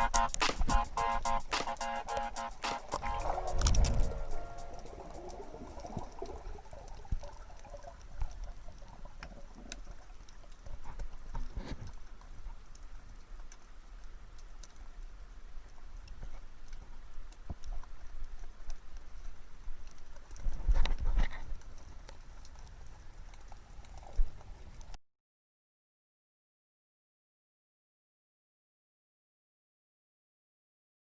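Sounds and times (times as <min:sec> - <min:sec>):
underwater clicks and crackles: 0:01.6 - 0:25.0
low rumble of water: 0:05.0 - 0:25.0.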